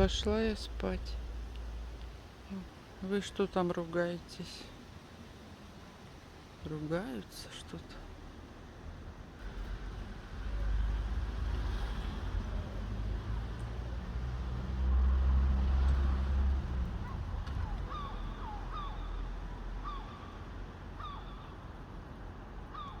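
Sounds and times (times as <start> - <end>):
passing traffic rumble: 0.0 - 23.0
young crows calling: 15.7 - 22.0, 22.6 - 23.0.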